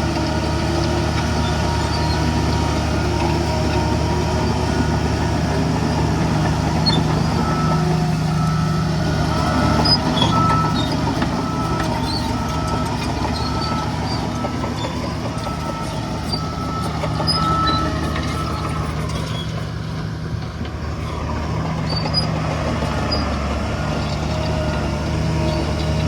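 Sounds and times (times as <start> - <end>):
heavy diesel machinery running: 0.0 - 26.0
reversing alarm beeping: 1.3 - 20.2.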